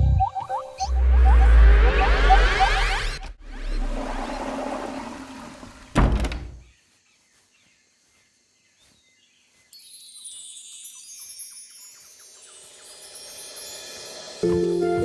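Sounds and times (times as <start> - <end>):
heavy thunk: 5.9 - 6.6.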